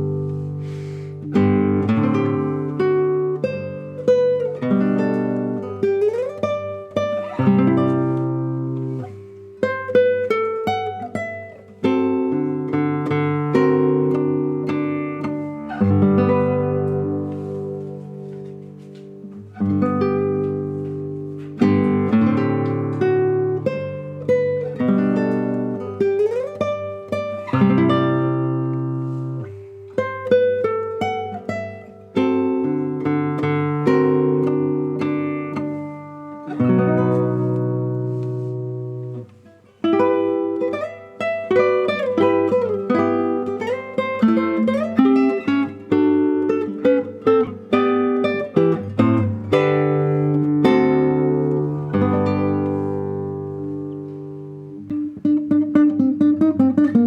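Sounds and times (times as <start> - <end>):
classical guitar playing: 0.0 - 57.0.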